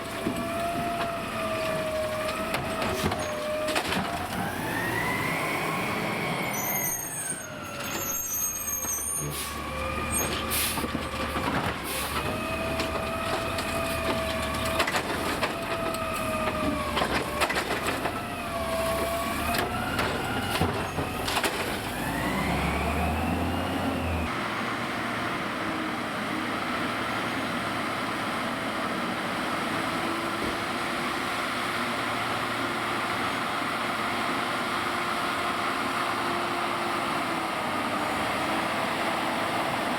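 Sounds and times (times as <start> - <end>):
garbage truck engine revving: 0.4 - 7.0, 9.2 - 25.2.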